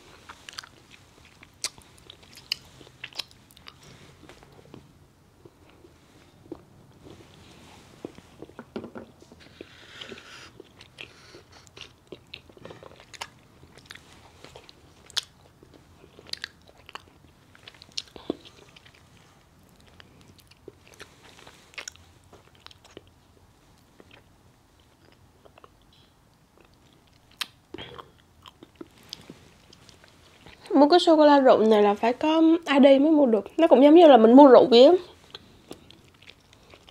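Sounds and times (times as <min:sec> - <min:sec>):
person chewing chocolates: 0:00.0 - 0:30.7, 0:35.1 - 0:36.9
mouth clicks and smacks: 0:01.4 - 0:04.8.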